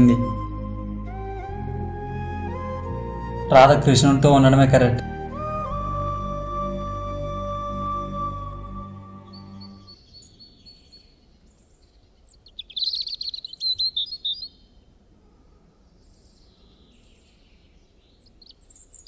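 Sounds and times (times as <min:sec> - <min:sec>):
small birds chirping: 0:07.6 - 0:15.0, 0:15.8 - 0:19.0.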